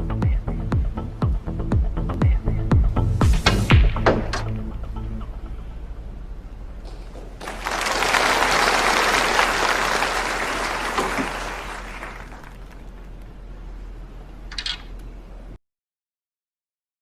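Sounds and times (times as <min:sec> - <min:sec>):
audience applauding: 0:07.4 - 0:13.2.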